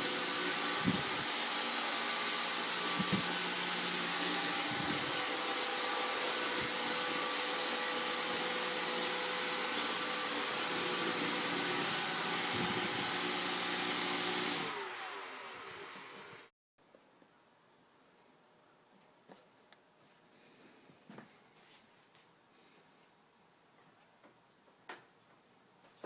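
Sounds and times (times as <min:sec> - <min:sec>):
robot vacuum whirring: 0:00.0 - 0:16.5.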